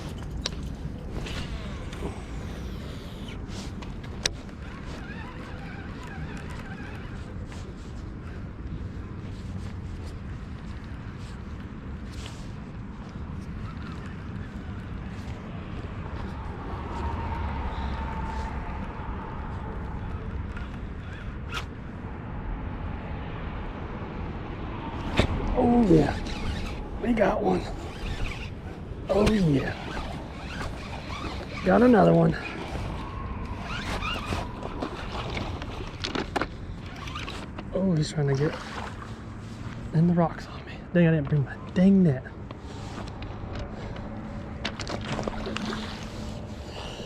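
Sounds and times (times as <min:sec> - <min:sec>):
wind on microphone: 0:00.0 - 0:37.6.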